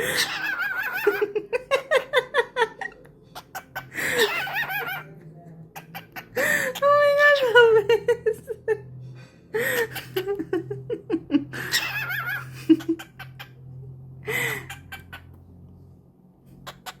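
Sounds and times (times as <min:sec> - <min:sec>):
cockatiel mimicking laughter: 0:00.0 - 0:02.1, 0:02.7 - 0:05.1, 0:09.6 - 0:13.6, 0:14.3 - 0:15.4.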